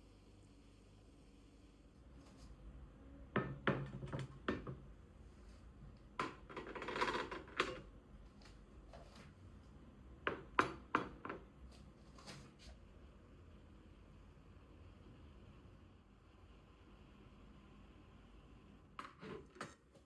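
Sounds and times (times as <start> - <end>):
noise: 0.0 - 20.0
household objects clicking and knocking: 3.4 - 4.8, 6.1 - 7.9, 10.2 - 11.5.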